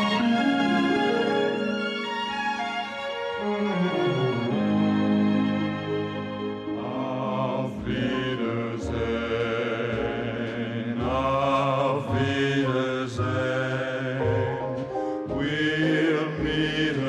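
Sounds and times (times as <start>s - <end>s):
choir-like chanted vocals: 6.7s - 17.0s.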